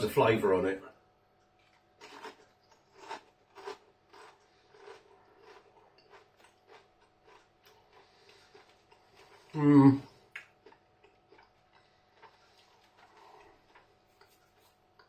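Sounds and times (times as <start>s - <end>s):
person chewing crunchy chip: 1.6s - 9.6s, 10.2s - 15.0s.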